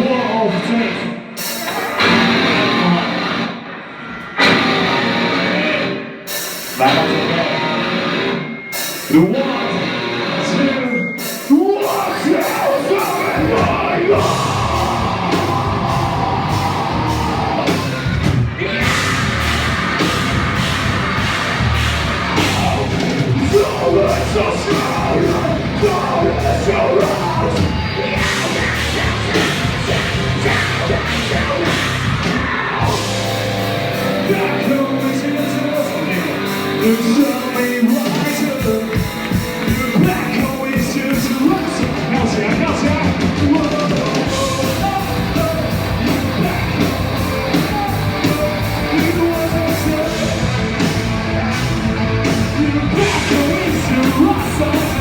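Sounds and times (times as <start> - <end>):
heavy rock band playing: 0.0 - 55.0
shouted vocals: 9.2 - 33.3, 52.4 - 55.0
pounding drums: 37.4 - 55.0.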